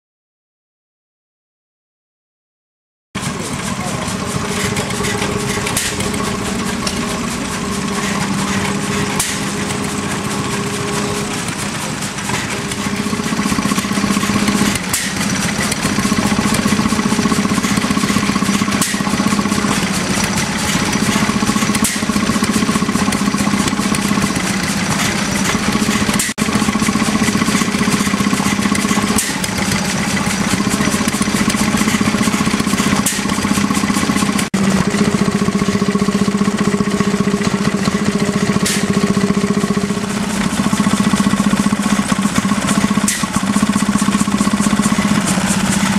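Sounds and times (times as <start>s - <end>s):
stationary engines running: 3.2s - 45.9s.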